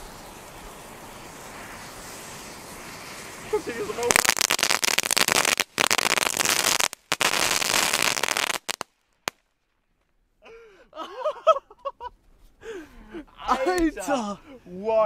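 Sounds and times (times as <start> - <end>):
fireworks banging and crackling: 0.0 - 9.5
man exclaiming: 13.3 - 15.0.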